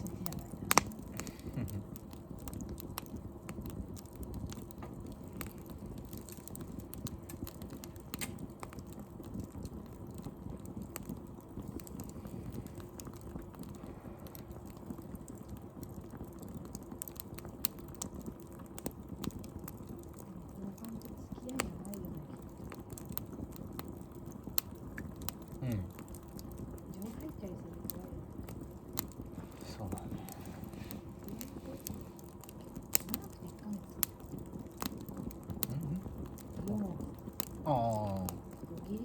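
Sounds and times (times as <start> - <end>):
wood fire crackling and popping: 0.0 - 39.0.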